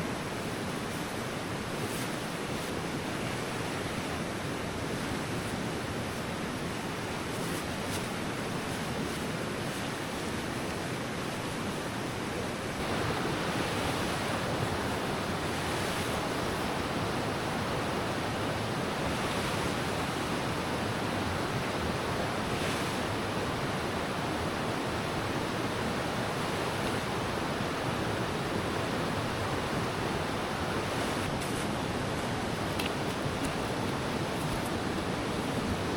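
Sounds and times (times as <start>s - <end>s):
river water rushing: 8.2s - 35.9s.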